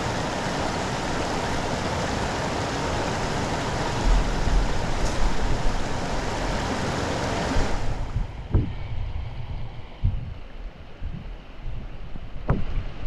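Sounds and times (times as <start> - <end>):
heavy rain: 0.0 - 10.1
floodwater running: 0.0 - 12.6
low rumbling bumps: 3.9 - 6.6, 7.6 - 12.9.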